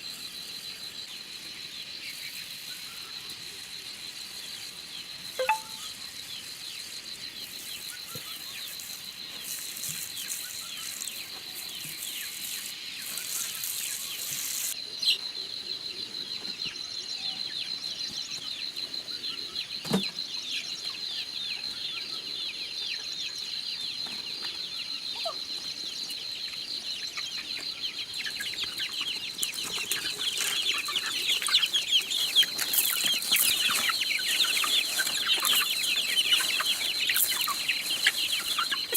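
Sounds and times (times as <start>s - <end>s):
chickens clucking and chirping: 0.0s - 38.9s.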